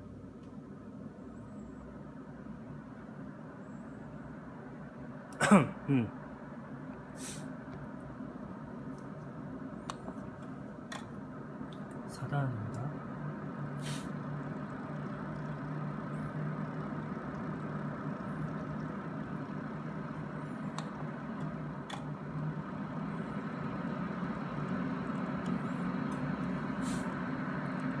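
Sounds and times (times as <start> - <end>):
air purifier fan rushing: 6.2 - 28.0.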